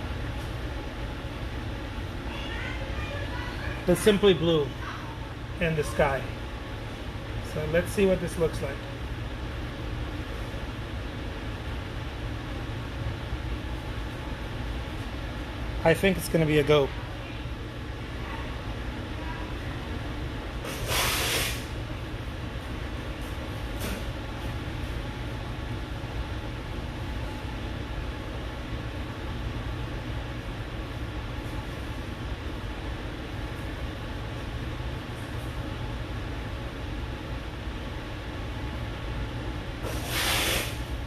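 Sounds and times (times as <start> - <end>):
low room hum: 0.0 - 41.0
spray hissing from nozzle: 20.7 - 21.7, 39.8 - 40.8.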